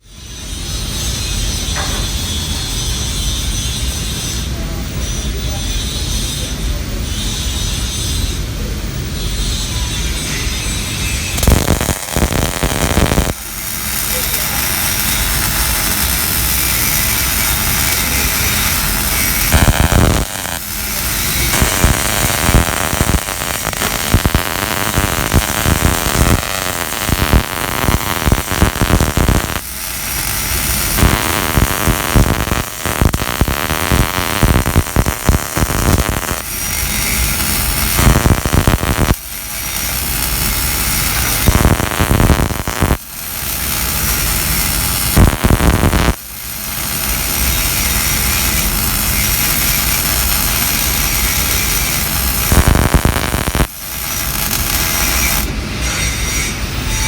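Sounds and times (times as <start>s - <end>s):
arc welding crackling hiss: 9.1s - 57.0s.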